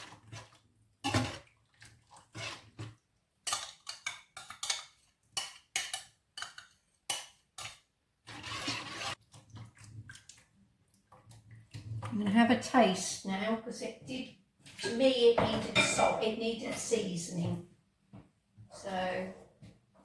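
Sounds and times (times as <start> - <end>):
metal spoon scraping a pan: 2.2 - 9.2.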